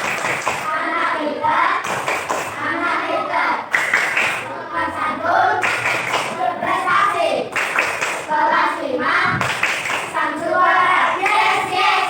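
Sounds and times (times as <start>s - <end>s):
children singing in unison: 0.0s - 12.0s.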